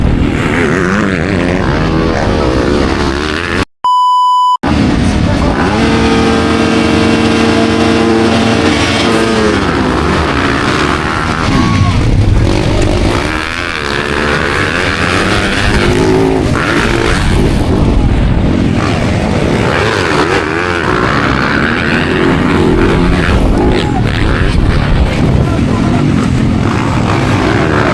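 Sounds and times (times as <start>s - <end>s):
motocross bike engines revving: 0.0s - 3.7s, 4.7s - 27.9s.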